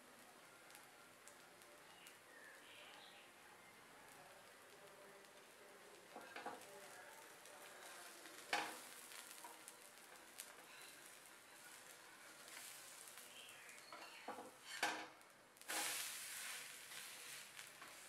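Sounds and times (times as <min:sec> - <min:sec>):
batter sizzling on a pan: 0:00.0 - 0:18.0
metal spatula scraping pan: 0:13.8 - 0:15.1, 0:15.7 - 0:18.0.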